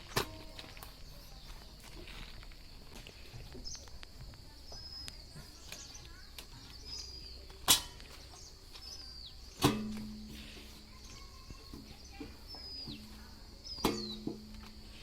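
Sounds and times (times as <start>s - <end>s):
bird chirps: 4.6s - 15.0s.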